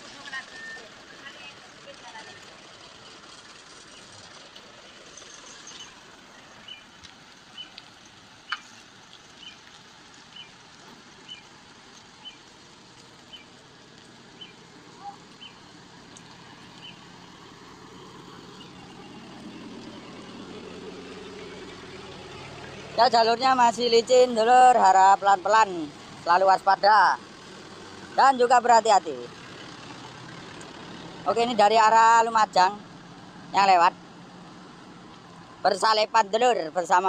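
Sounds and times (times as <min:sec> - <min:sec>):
vehicle engine: 0:00.0 - 0:37.0.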